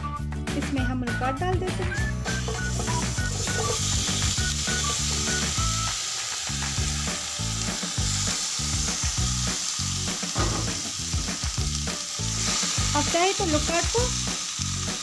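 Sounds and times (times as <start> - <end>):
fruit sizzling in a frying pan: 2.1 - 15.0
fruit pieces knocking on pan: 10.3 - 11.4.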